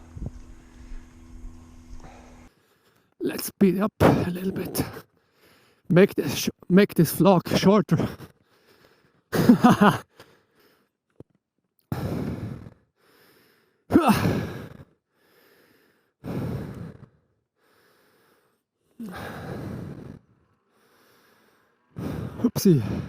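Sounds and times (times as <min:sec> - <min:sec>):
man sighing heavily: 0:13.9 - 0:14.9, 0:19.0 - 0:20.2, 0:22.0 - 0:23.0.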